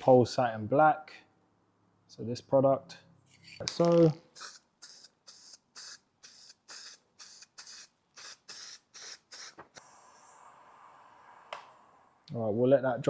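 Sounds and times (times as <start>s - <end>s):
aerosol can spraying bursts: 4.3s - 9.9s.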